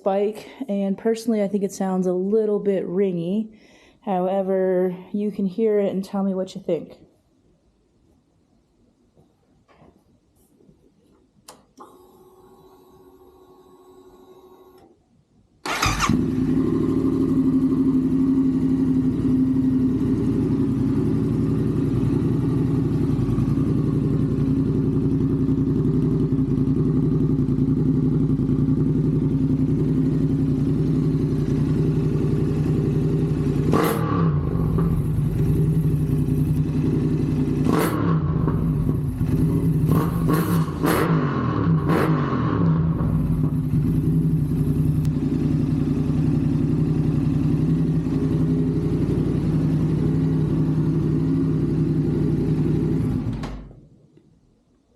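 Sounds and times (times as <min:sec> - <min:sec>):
motorcycle engine idling: 0:15.7 - 0:40.9, 0:42.6 - 0:53.4
motorcycle throttle blips: 0:15.7 - 0:53.5.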